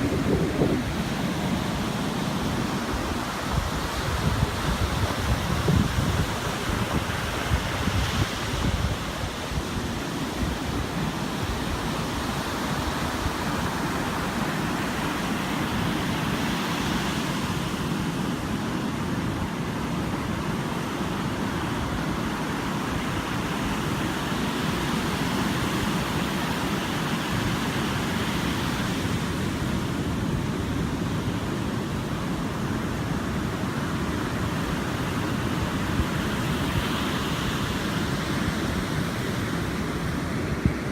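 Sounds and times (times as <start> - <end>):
wind buffeting microphone: 0.0 - 18.4
sea surf washing in: 0.0 - 40.9.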